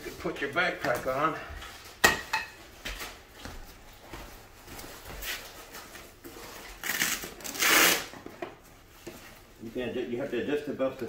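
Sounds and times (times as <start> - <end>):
straps rubbing and rustling: 3.0 - 11.0.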